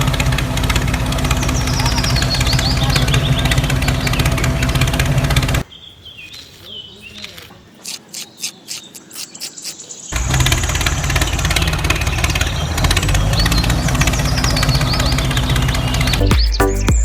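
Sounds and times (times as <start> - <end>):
small engine starting and running: 0.0 - 5.6, 10.1 - 16.3.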